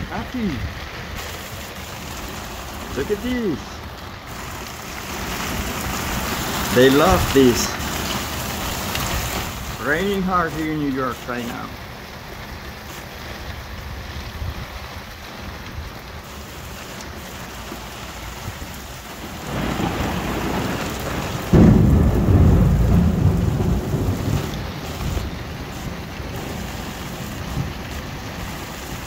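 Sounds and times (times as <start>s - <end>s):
thunder crack and rumble: 0.0s - 10.6s, 18.3s - 29.0s
heavy rain pouring: 0.0s - 29.0s.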